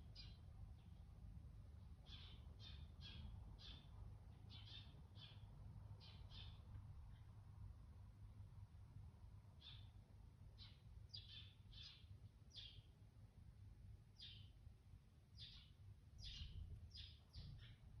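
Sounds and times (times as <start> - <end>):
small bird chirping: 0.0 - 1.0, 2.0 - 7.4, 9.5 - 13.0, 14.2 - 14.6, 15.3 - 18.0.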